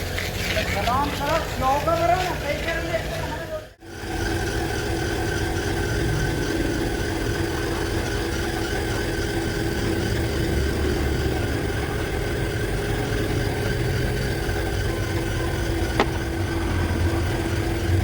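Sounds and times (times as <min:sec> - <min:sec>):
motor humming: 0:00.0 - 0:18.0.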